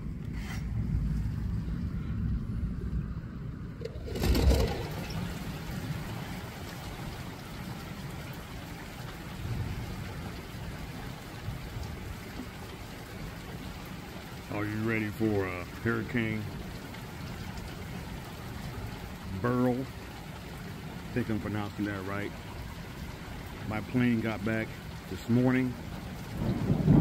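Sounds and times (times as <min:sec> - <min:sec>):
low rumble: 0:00.0 - 0:06.4
rain on plants and fence: 0:00.0 - 0:27.0.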